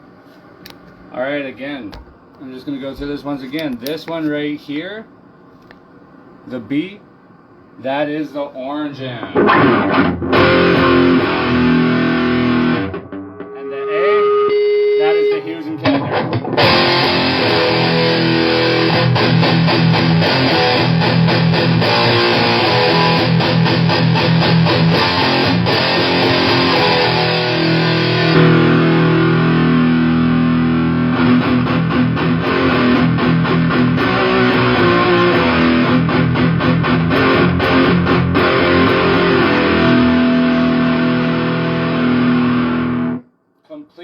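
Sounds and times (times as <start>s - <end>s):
fuzz electric guitar riffing: 9.3s - 43.2s.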